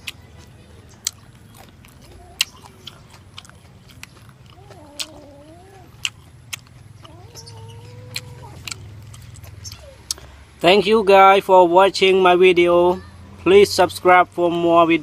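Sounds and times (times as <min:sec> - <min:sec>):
chewing crispy meat: 0:00.0 - 0:10.4
high-pitched wavering cries: 0:07.0 - 0:08.7.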